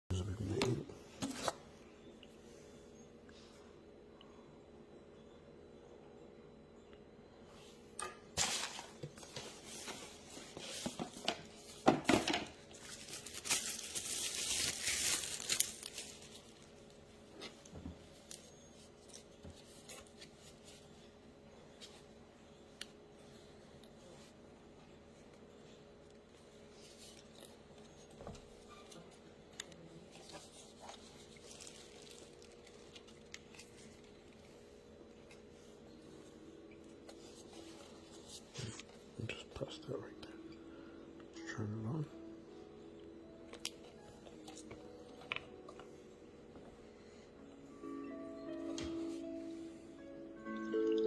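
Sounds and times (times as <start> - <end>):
low steady hum: 0.1 - 51.0
packaging crinkling and rustling: 8.4 - 20.9, 26.8 - 35.7.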